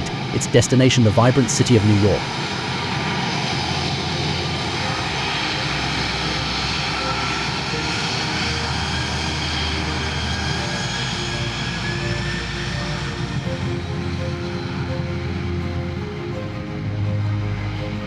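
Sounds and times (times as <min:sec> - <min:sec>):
faint engine whine: 0:00.0 - 0:18.0
jet engines at takeoff: 0:00.0 - 0:18.0.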